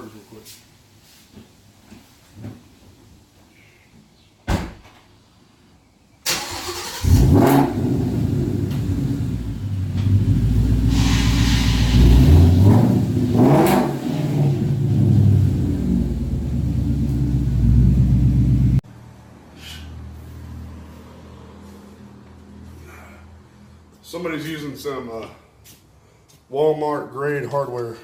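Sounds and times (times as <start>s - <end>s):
car door thumping shut: 4.5s - 4.9s
car engine starting and running: 6.3s - 18.8s.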